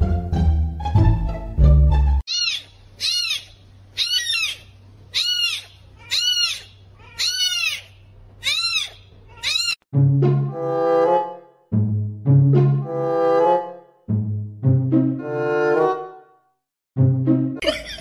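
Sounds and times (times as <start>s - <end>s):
music: 0.0s - 2.2s, 10.0s - 16.3s, 17.0s - 17.6s.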